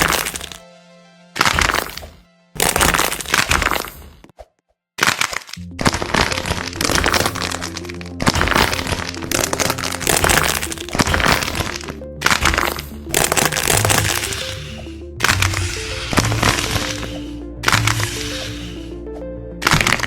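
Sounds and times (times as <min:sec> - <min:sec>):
background music: 0:00.0 - 0:03.9, 0:05.6 - 0:20.0
wax coating cracking: 0:05.0 - 0:18.8.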